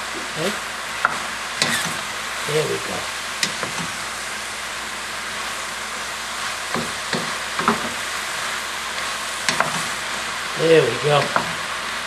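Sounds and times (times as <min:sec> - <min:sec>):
mushrooms sizzling in a pan: 0:00.0 - 0:12.0
wooden spoon knocking on pan: 0:06.7 - 0:08.0, 0:09.4 - 0:09.9, 0:11.2 - 0:11.6.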